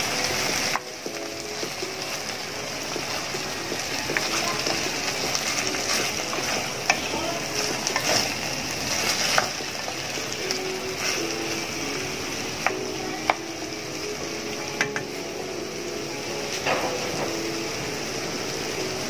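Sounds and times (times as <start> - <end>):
food sizzling in a pan: 0.0 - 19.0
spatula scraping a pan: 3.8 - 9.6.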